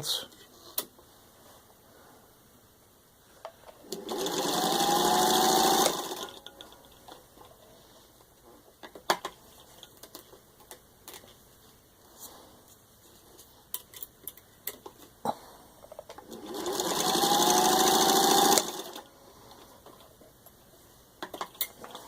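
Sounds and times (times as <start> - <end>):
sewing machine running: 3.9 - 6.5, 16.2 - 19.1.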